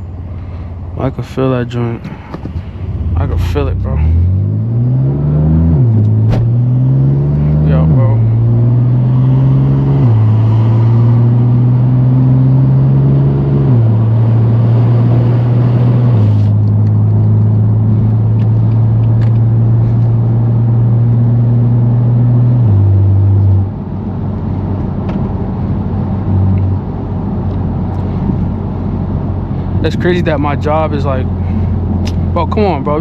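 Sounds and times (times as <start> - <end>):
car engine droning: 0.0 - 33.0.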